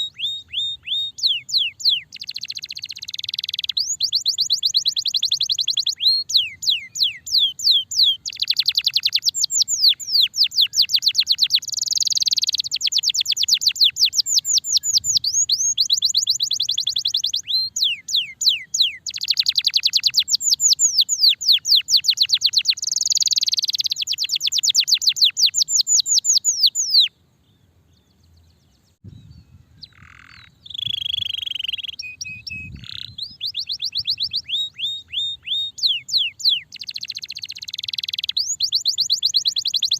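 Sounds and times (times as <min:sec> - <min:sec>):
canary singing rapid rolls: 0:00.0 - 0:27.1, 0:29.8 - 0:39.9.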